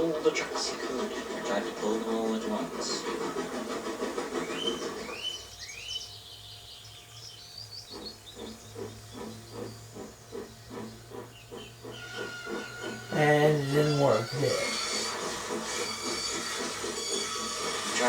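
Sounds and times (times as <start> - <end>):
steam locomotive chuffing: 0.0 - 18.0
steam locomotive whistle: 11.8 - 18.0.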